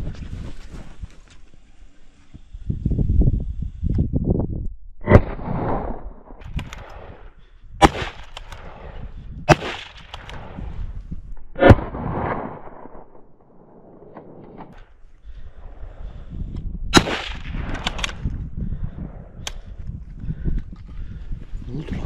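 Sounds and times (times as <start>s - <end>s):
gunshots with rolling echo: 5.0s - 14.9s, 16.9s - 19.4s.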